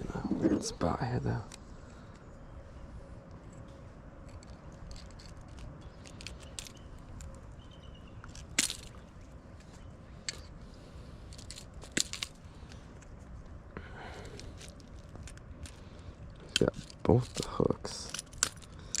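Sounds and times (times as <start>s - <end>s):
low background rumble: 0.0s - 19.0s
fishing hooks clicking: 18.0s - 19.0s.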